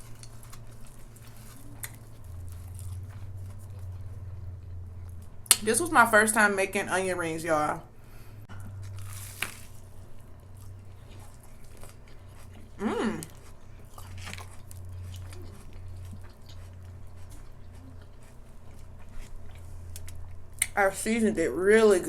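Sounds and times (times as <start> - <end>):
crunching onion ring: 0.0 - 5.7, 8.6 - 20.8
wet chewing: 0.0 - 5.7, 8.5 - 20.8
low electrical hum: 0.0 - 22.0
person humming mm: 12.8 - 13.3.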